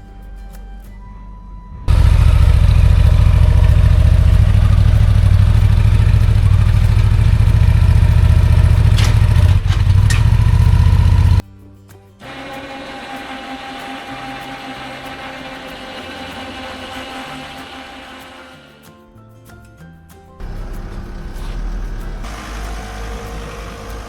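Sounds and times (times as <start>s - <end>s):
background music: 0.0s - 1.9s, 11.4s - 24.0s
vehicle engine running: 1.7s - 11.4s, 20.4s - 24.0s.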